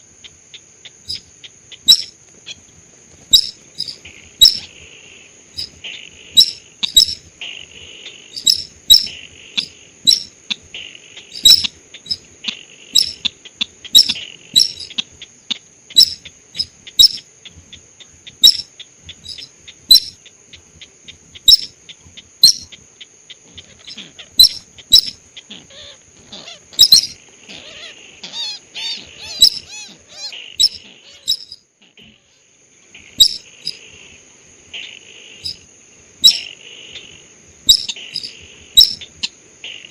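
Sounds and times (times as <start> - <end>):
high insect-like whine: 0.0 - 39.9
bird chip notes: 3.3 - 4.8, 5.6 - 7.2, 8.3 - 10.4, 11.2 - 12.3, 13.0 - 13.2, 13.9 - 15.0, 18.4 - 20.2, 22.4 - 22.8, 23.6 - 25.2, 26.7 - 31.6, 33.1 - 33.8, 37.7 - 39.2.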